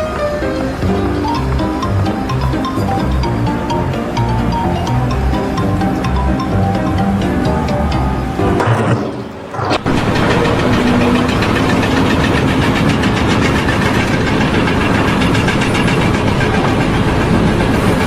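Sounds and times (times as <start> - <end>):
engine-driven machine knocking: 8.6 - 18.0.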